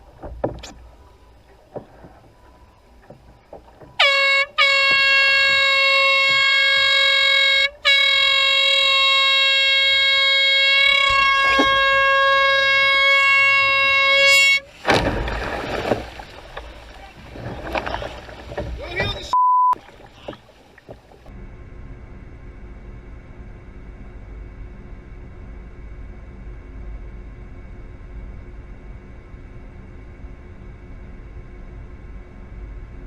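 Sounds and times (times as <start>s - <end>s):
air horn blasts: 3.9s - 14.8s.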